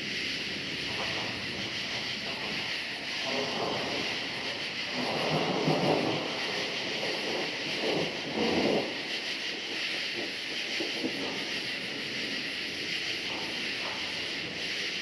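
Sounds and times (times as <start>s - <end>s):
crickets chirping: 0.0s - 15.0s
thunder rumbling: 3.2s - 8.9s.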